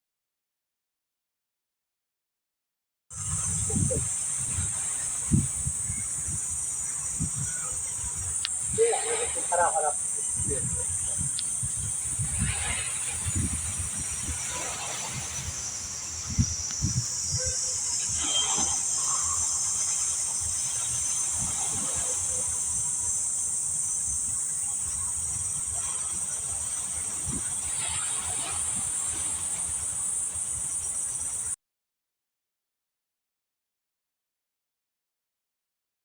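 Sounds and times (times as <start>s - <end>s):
insects chirping chorus: 3.1s - 31.6s.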